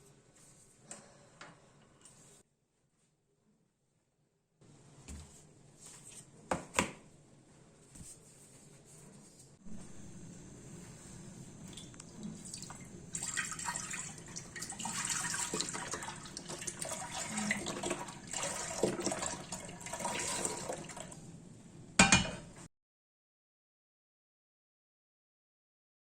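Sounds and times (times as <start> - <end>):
liquid splashing and trickling: 11.6 - 21.2.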